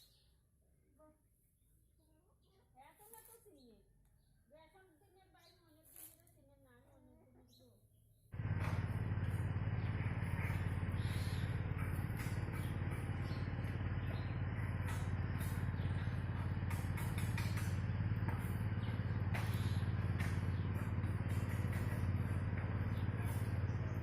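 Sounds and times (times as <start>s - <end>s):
low pulsing engine drone: 8.4s - 24.0s.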